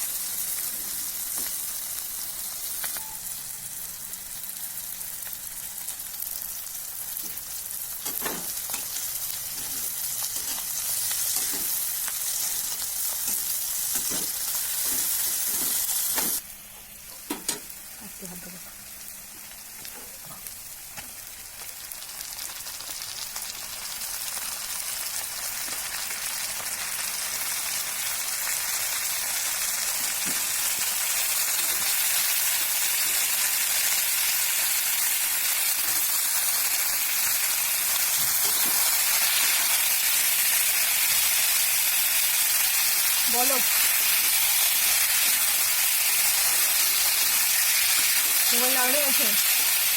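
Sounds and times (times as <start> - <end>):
food sizzling in hot oil: 0.0 - 49.9.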